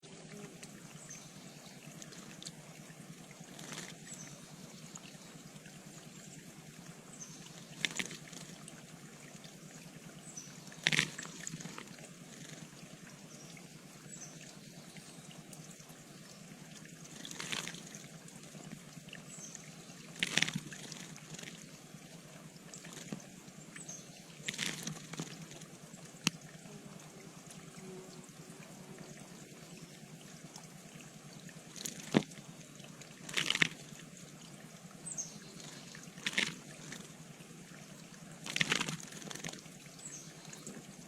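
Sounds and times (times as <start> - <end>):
trickling water hiss: 0.0 - 41.0
bird splashing in water: 3.2 - 6.0, 7.0 - 13.1, 16.8 - 21.7, 22.5 - 26.7, 31.4 - 37.7, 38.4 - 41.0.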